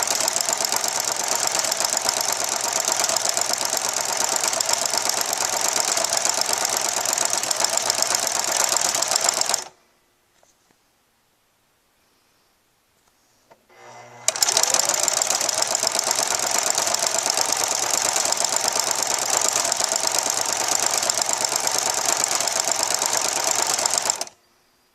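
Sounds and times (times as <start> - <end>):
sewing machine motor humming: 0.0 - 9.7, 13.7 - 24.4
sewing machine stitching clatter: 0.0 - 9.7, 14.3 - 24.4.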